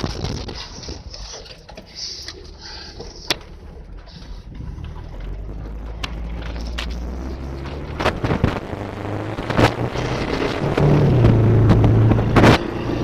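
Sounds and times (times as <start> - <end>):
car engine running low: 0.0 - 13.0.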